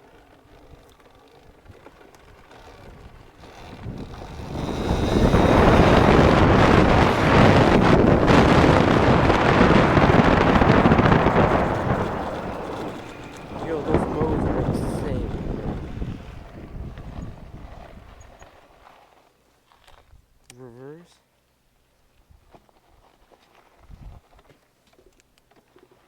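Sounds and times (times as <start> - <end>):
dirt bike accelerating: 0.0 - 19.1
wind rushing over microphone: 2.8 - 18.4.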